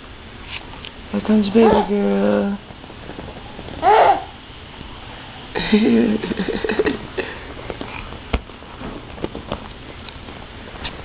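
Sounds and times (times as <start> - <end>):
infant babbling: 1.6 - 2.0, 3.8 - 4.3
infant squealing: 3.8 - 4.3.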